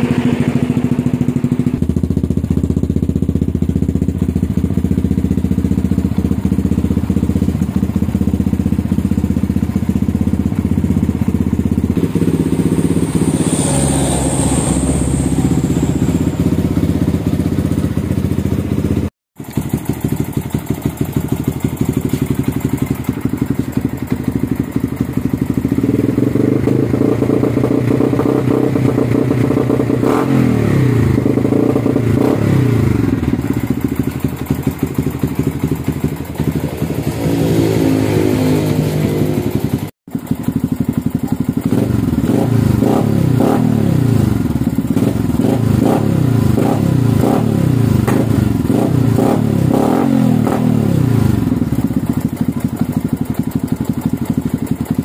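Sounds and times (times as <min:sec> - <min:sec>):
motorcycle engine revving: 0:00.0 - 0:55.0
quick throttle blips: 0:11.0 - 0:18.6.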